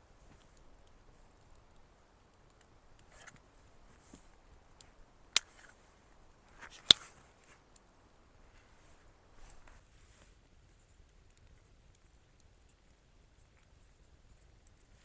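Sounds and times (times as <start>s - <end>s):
faint rustling: 0.0s - 11.1s.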